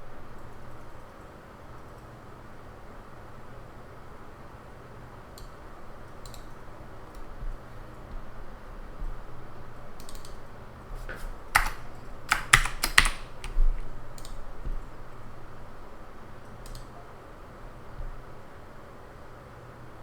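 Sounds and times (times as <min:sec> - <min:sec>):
faint low hum: 0:00.0 - 0:20.0
computer keyboard typing: 0:05.3 - 0:08.1, 0:09.9 - 0:14.8, 0:16.5 - 0:16.9.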